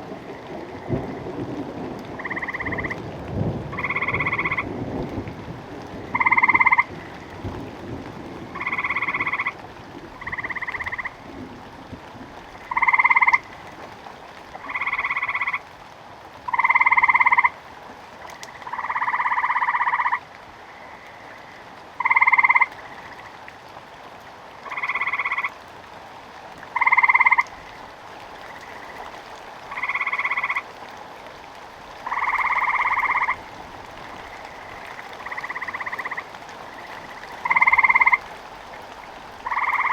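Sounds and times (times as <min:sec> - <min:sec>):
frogs croaking: 0:00.0 - 0:11.4, 0:12.4 - 0:13.8, 0:14.5 - 0:15.7, 0:16.5 - 0:17.6, 0:18.2 - 0:23.5, 0:24.6 - 0:25.6, 0:26.6 - 0:39.9
low rumble of thunder: 0:00.0 - 0:13.4
faint rain hiss: 0:00.0 - 0:39.9.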